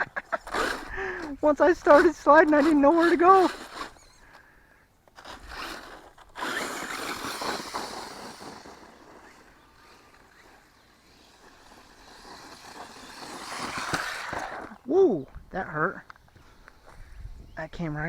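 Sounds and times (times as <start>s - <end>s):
grass swishing against toy truck: 0.0s - 4.2s, 5.1s - 14.9s.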